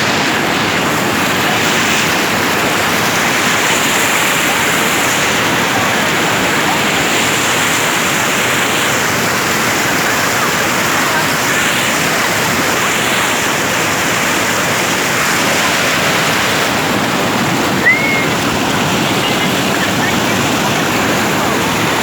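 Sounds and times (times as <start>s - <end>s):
waterfall rushing: 0.0s - 22.0s
short high chirp: 17.8s - 18.4s.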